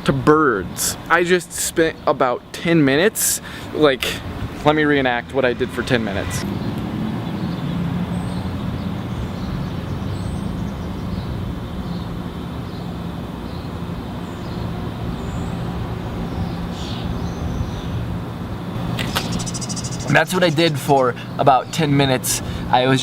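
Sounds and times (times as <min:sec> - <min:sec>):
low mechanical hum of machinery: 0:18.7 - 0:23.0
faint high bird chirps: 0:18.8 - 0:22.0.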